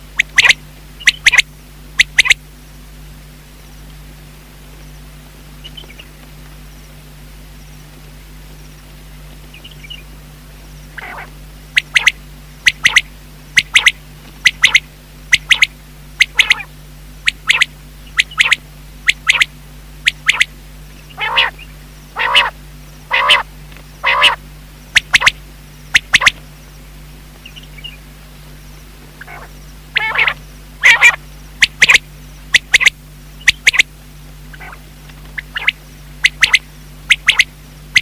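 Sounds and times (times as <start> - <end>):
quail calling: 0.2 - 2.4, 10.9 - 26.4, 29.2 - 33.9, 34.5 - 38.0.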